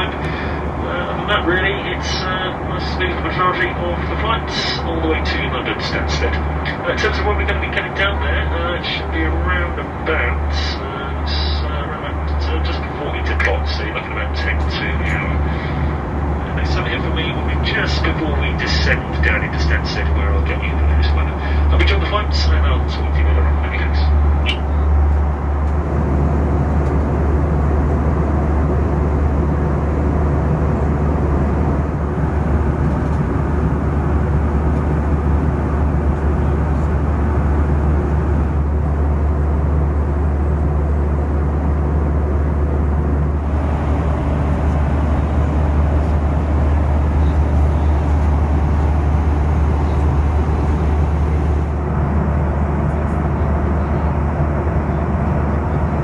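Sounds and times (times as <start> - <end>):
airliner cabin engine drone: 0.0 - 56.0.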